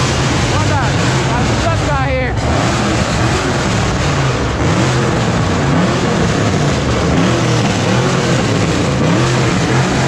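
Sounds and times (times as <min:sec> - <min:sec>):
car engines revving: 0:00.0 - 0:10.0
loud steady rushing noise: 0:00.0 - 0:10.0.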